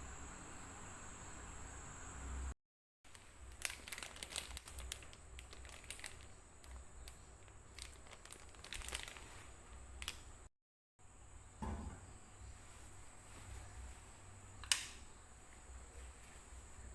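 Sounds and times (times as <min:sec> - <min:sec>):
plastic packaging crinkling: 0:03.1 - 0:10.4.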